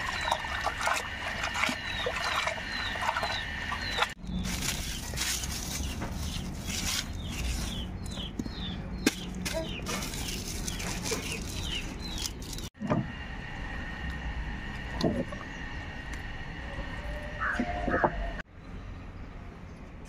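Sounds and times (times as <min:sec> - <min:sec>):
bird chirping: 0:01.7 - 0:12.7.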